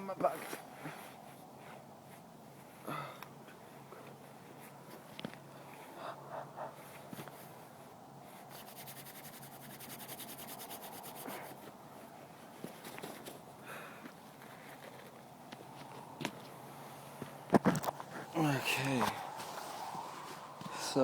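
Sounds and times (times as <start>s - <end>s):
fabric rubbing on microphone: 6.8s - 13.4s, 16.8s - 21.0s.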